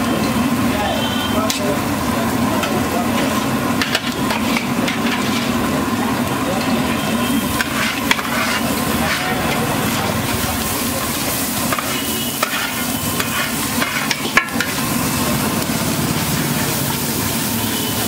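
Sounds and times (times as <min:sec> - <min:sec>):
egg sizzling on a griddle: 0:00.0 - 0:18.0
metal spatula scraping: 0:03.1 - 0:05.6, 0:07.4 - 0:10.4, 0:11.3 - 0:14.8.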